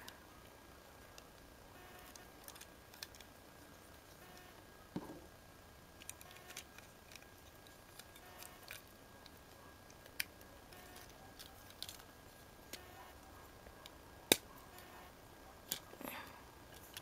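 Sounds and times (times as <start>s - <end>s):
plastic parts clicking and snapping: 2.1s - 3.3s, 6.0s - 12.1s, 15.6s - 16.0s.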